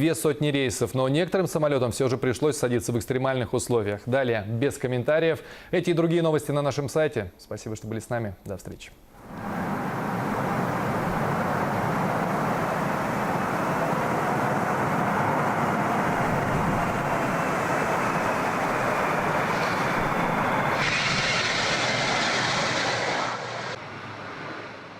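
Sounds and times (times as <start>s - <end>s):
high hiss with thin whine: 0.1s - 23.8s
gusting storm wind: 9.2s - 24.9s
jet engines roaring: 9.2s - 24.9s.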